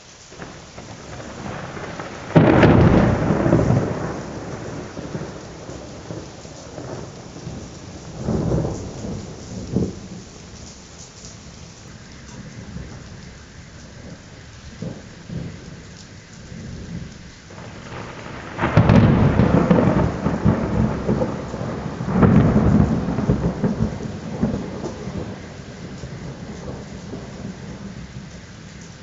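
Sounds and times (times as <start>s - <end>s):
steady rain: 0.0s - 29.0s
thunder crack and rumbling: 0.3s - 29.0s.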